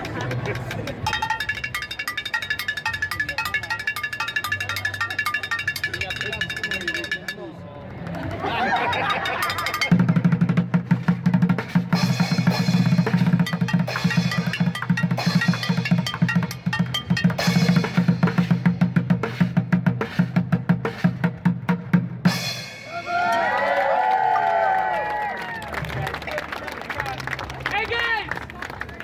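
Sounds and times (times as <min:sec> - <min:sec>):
fast street drumming: 0:00.0 - 0:24.8
voices whooping: 0:22.9 - 0:25.7.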